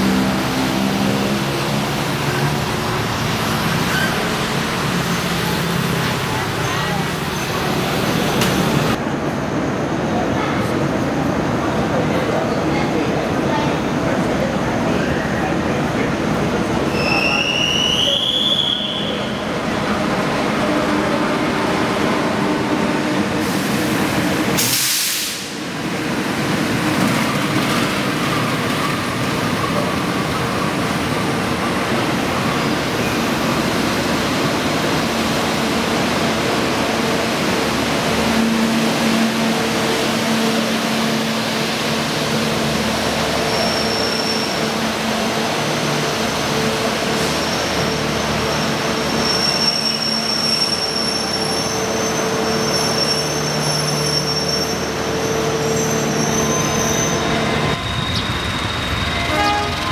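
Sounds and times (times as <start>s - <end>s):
high wheel squeal: 3.7s - 4.4s, 16.9s - 19.5s, 43.3s - 44.8s, 47.1s - 59.9s.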